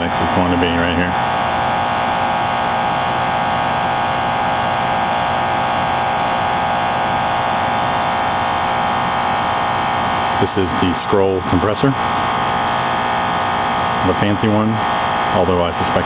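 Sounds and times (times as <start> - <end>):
air conditioner droning hum: 0.0 - 16.0.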